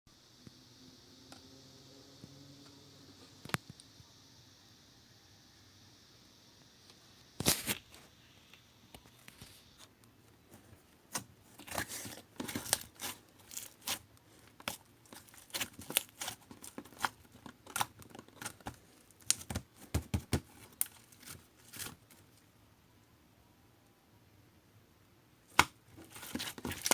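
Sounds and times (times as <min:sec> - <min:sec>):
slime crackling and popping: 0:11.6 - 0:14.0, 0:14.6 - 0:21.9, 0:25.5 - 0:26.9.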